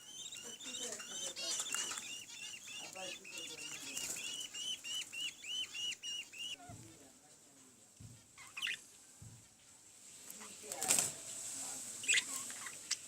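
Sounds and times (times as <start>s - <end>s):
budgerigar chicks chirping: 0.0s - 7.1s, 8.0s - 9.8s, 12.0s - 13.0s.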